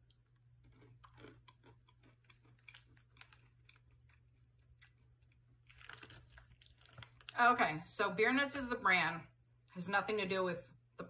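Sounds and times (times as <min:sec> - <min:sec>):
peanuts crunching while chewed: 0:00.0 - 0:07.4.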